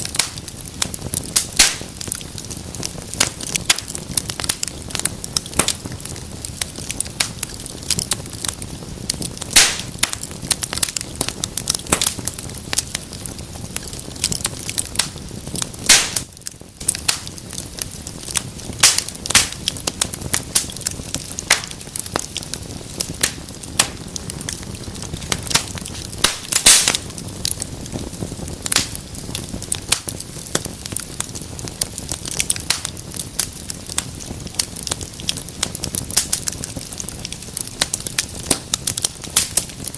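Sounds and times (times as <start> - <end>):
low rush of flame: 0.0 - 39.9
sharp snaps of fire: 0.0 - 39.9
wood fire crackling and popping: 0.0 - 39.9.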